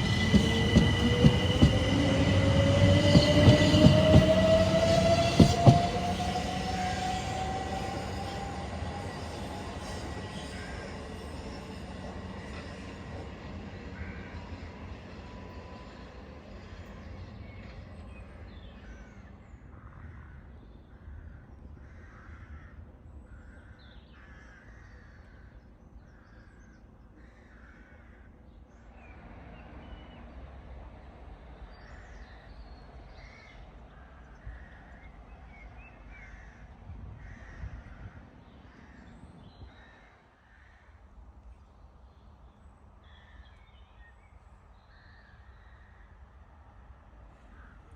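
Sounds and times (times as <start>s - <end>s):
crows cawing: 21.8s - 22.8s, 23.4s - 25.5s, 27.2s - 28.4s, 39.7s - 41.0s.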